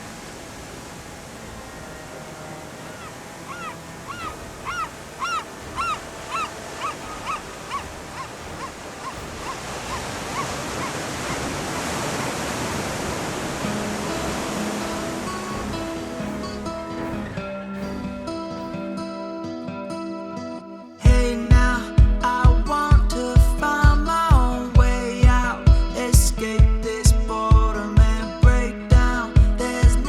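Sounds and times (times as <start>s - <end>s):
surf rushing: 0.0s - 19.7s
bird calling short notes: 2.7s - 13.3s.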